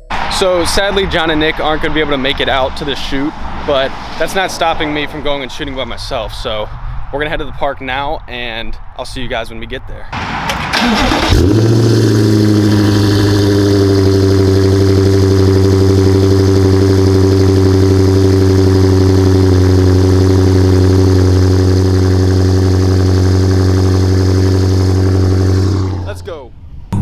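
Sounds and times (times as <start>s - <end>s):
car engine starting and idling: 10.2s - 26.3s.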